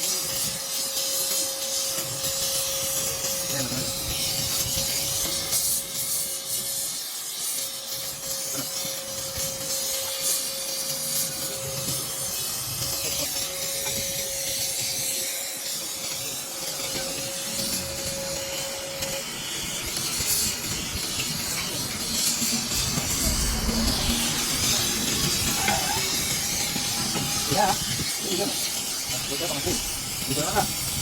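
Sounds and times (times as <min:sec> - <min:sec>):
welding torch flame hissing: 0:00.0 - 0:31.0
low rumble: 0:22.7 - 0:26.5.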